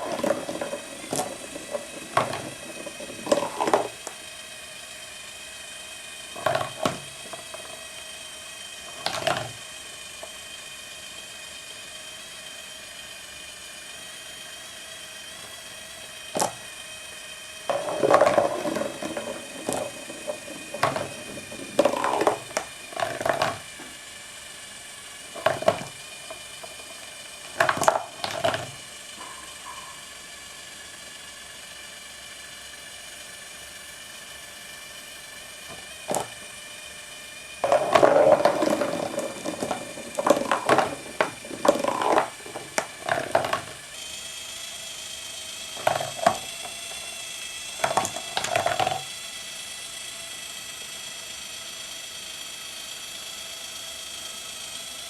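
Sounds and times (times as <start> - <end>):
marbles rattling and clattering: 0.0 - 4.2, 6.4 - 7.8, 17.7 - 23.8, 25.3 - 28.8, 35.7 - 36.4, 37.6 - 43.8, 45.8 - 46.7, 47.8 - 49.0
small electric motor whine: 0.0 - 55.0.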